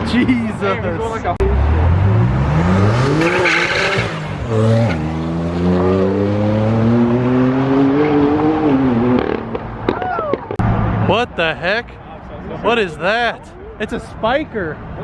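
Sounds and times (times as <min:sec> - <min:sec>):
sports car engine revving: 0:01.4 - 0:09.7.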